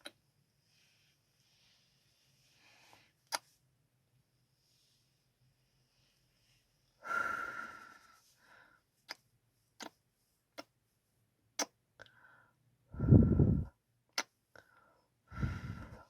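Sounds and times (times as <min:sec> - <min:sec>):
lip smacks and clicks: 0:11.6 - 0:11.8.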